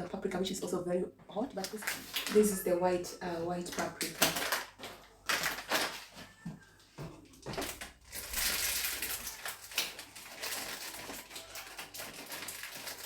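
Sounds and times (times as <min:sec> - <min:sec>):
plastic packaging crinkling: 0:01.5 - 0:02.7, 0:03.6 - 0:06.4, 0:07.2 - 0:13.0.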